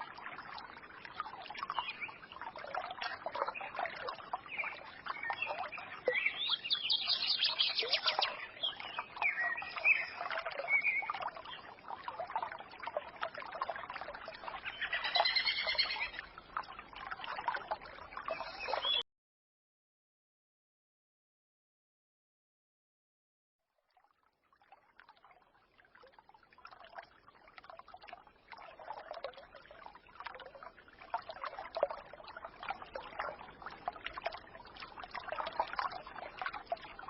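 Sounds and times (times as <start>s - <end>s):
small songbirds chirping: 1.2s - 11.9s, 14.4s - 16.2s, 18.2s - 19.0s
forest stream murmuring: 3.1s - 13.1s, 13.9s - 16.6s.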